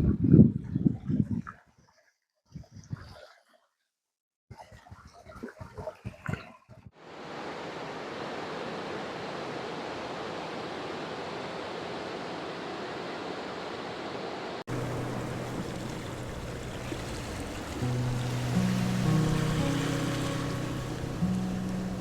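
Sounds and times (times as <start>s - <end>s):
waterfall rushing: 7.0s - 22.0s.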